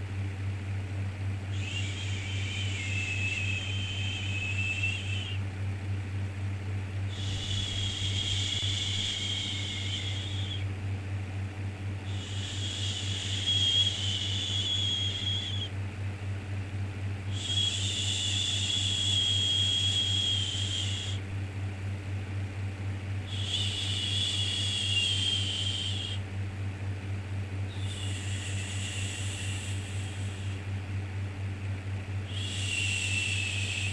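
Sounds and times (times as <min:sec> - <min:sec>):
low hum: 0:01.4 - 0:10.8, 0:12.1 - 0:15.8.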